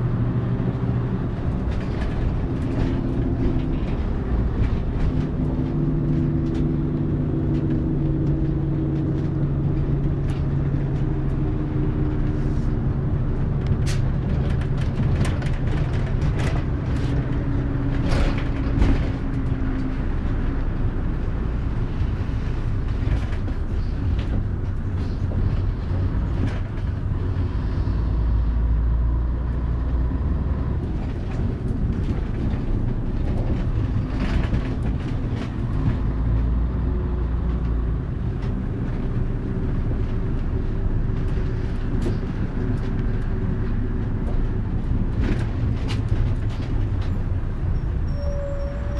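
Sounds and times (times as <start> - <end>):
bus engine rumble: 0.0 - 48.9
road noise: 0.0 - 48.9.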